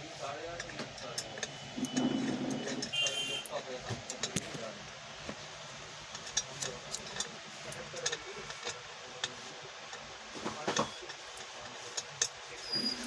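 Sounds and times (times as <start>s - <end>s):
light clicks and taps: 2.8s - 4.7s, 6.1s - 12.4s.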